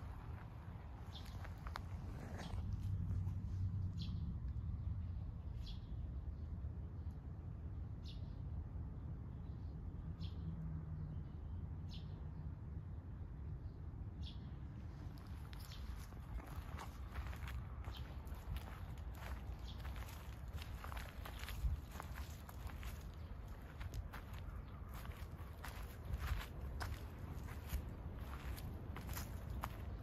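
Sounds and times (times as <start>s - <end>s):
steady low rumble: 14.6s - 30.0s.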